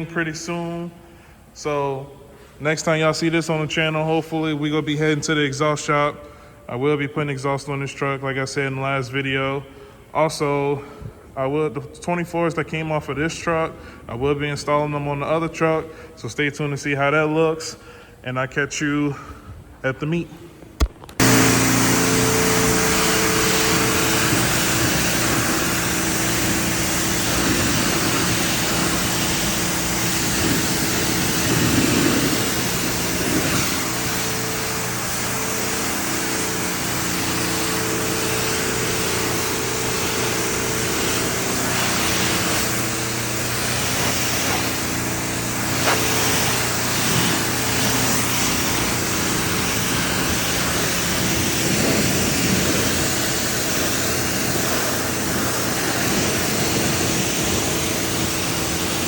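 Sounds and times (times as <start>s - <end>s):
pressure washer spray hiss: 21.2s - 59.0s
small gasoline engine running: 21.2s - 59.0s.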